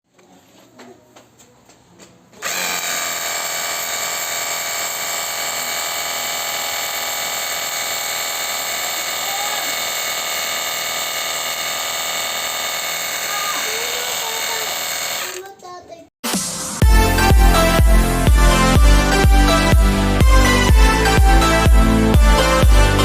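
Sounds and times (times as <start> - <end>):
pressure washer motor whining: 2.4 - 15.5.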